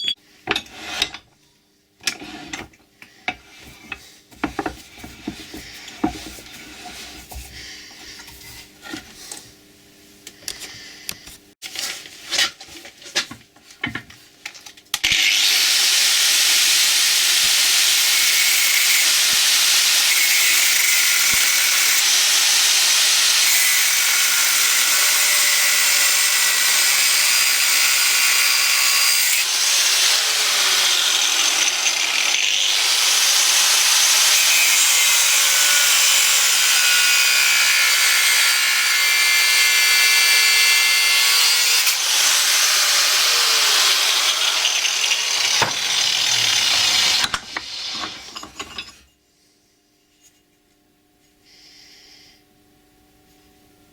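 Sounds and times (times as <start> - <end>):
power tool cutting steel: 15.0 - 48.9.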